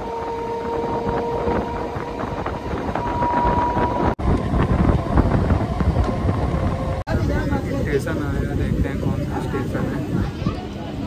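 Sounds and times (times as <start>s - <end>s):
train rumbling along track: 0.0s - 11.0s
wind on microphone: 0.0s - 11.0s
thin high whine: 2.3s - 6.2s.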